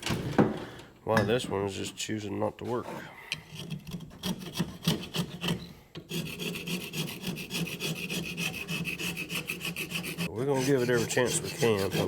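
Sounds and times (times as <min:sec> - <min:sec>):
brush scraping rusted metal: 0:02.6 - 0:12.0.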